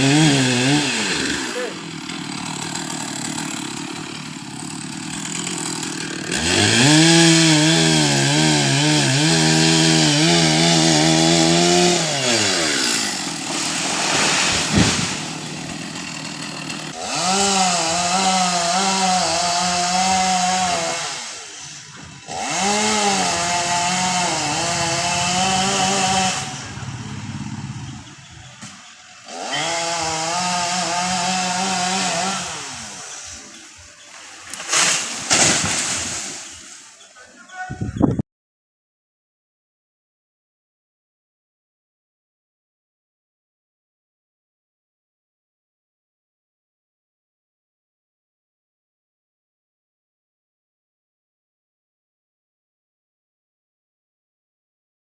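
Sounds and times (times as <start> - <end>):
chainsaw revving and cutting: 0.0 - 37.1.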